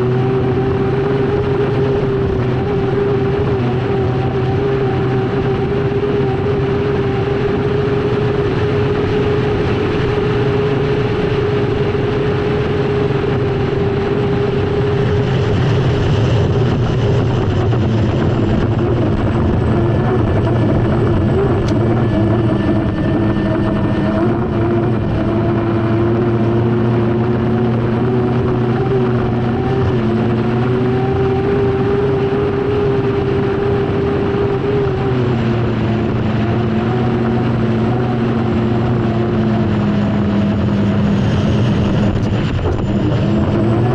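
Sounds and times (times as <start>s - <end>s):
continuous rush of noise: 0.0s - 43.9s
turbine engine whine: 0.0s - 43.9s.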